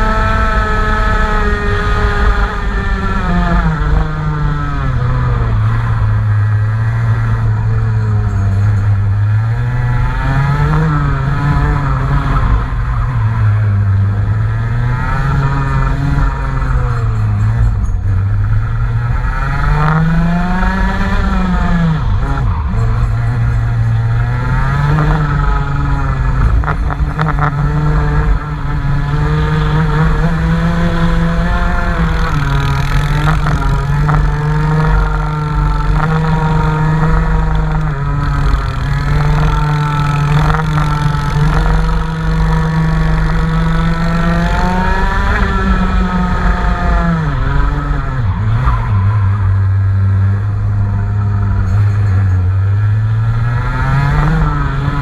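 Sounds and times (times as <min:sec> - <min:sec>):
race car engine running: 0:00.0 - 0:55.0.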